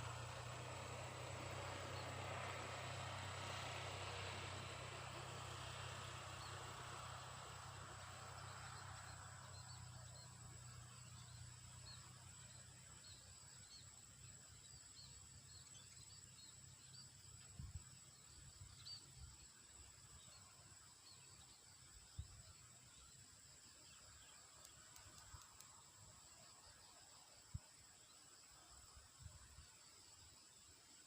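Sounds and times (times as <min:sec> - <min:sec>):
distant engine drone: 0:00.0 - 0:26.4.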